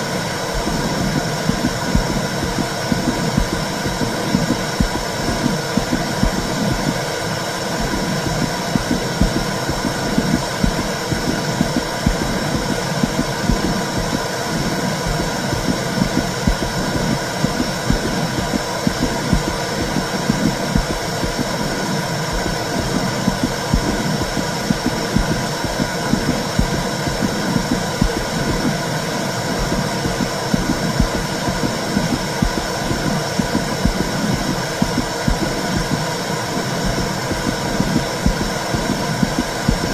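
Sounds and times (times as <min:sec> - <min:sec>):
faint constant tones: 0:00.0 - 0:39.9
muffled low rumbling with pulse: 0:00.2 - 0:07.2.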